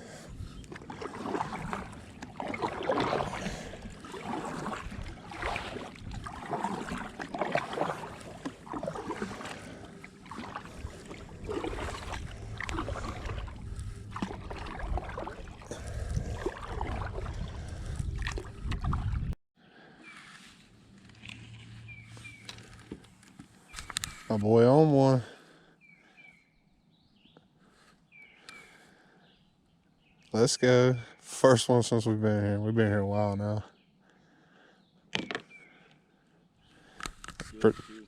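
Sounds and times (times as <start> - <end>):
paddle splashing water: 0.0 - 19.4
low rumble: 10.9 - 19.4.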